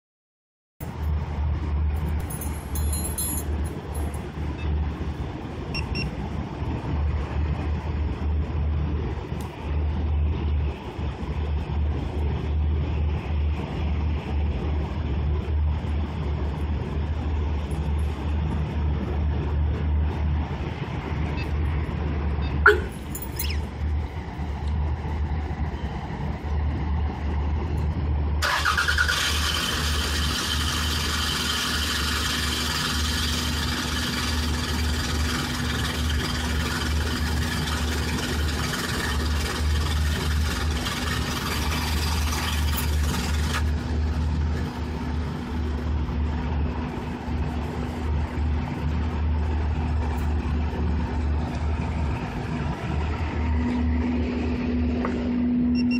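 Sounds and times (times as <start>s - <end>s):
car engine starting and idling: 0.8s - 55.9s
hissy layer over idle: 28.7s - 46.0s.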